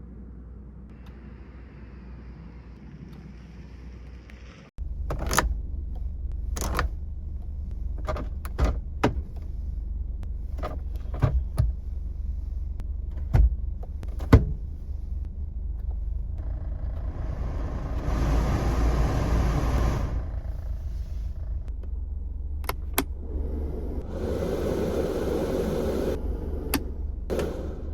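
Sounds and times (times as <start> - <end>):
van engine low rumble: 0.0 - 27.9
rushing hiss: 24.0 - 26.2.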